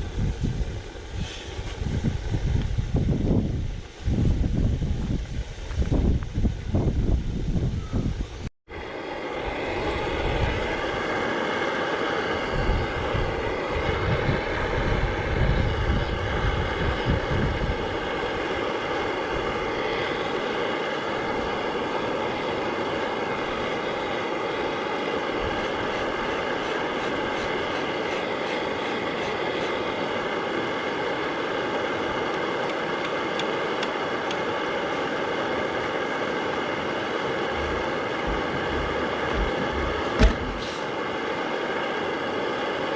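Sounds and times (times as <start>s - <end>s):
two-stroke diesel engine running: 9.2s - 41.2s.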